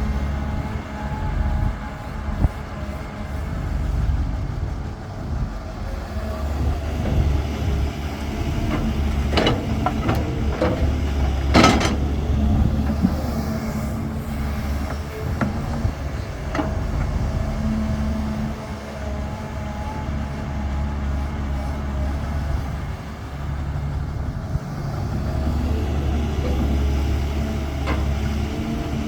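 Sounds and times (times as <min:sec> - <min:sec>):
diesel engine droning: 0:00.0 - 0:29.0
metallic clanks and rattles: 0:06.9 - 0:13.5.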